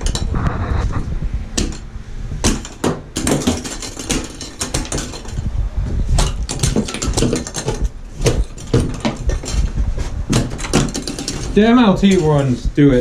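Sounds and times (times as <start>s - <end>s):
knocks on tile floor: 2.4s - 5.4s, 6.2s - 11.6s.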